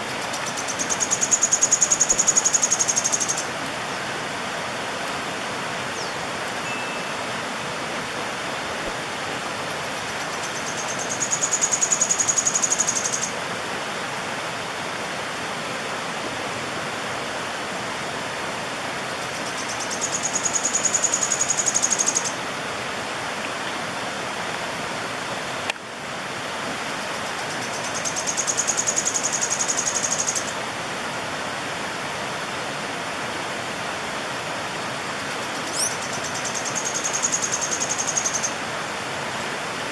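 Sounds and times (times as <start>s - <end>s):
stream rushing: 0.0s - 39.9s
bird singing high trill: 6.0s - 7.3s, 35.6s - 38.6s.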